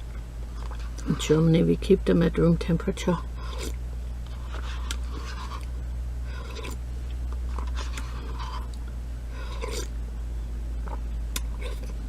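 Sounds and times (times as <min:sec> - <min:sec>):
slurping and chewing: 0:00.0 - 0:01.2, 0:03.4 - 0:10.0, 0:10.8 - 0:12.0
low hum: 0:00.0 - 0:12.0.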